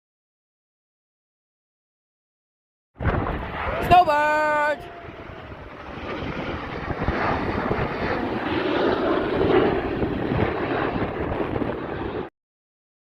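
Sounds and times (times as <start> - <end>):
jets passing over: 3.0 - 12.3.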